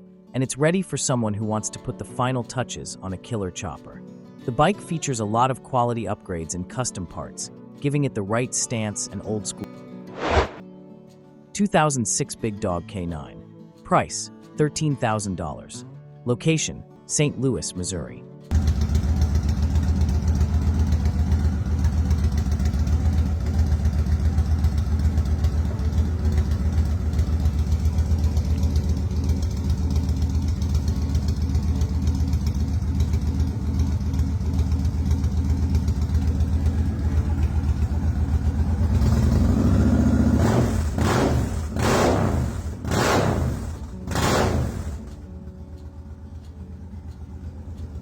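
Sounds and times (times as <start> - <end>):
motorcycle engine idling and revving: 18.5 - 48.0.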